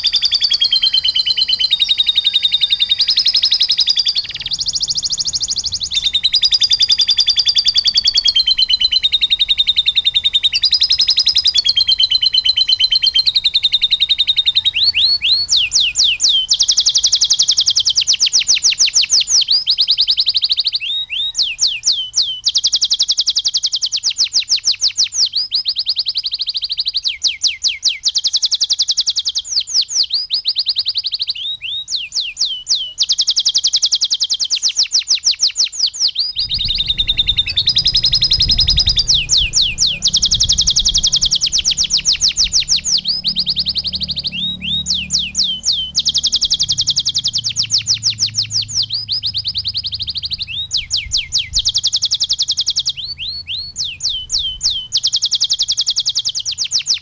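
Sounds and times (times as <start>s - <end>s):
canary singing rolling trills: 0.0s - 57.0s
low rumble: 36.4s - 51.8s.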